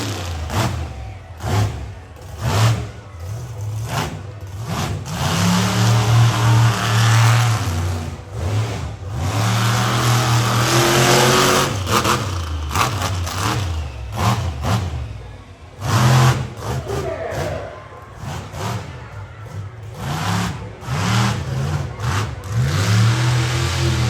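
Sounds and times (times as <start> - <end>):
truck engine revving hard: 0.0 - 24.0.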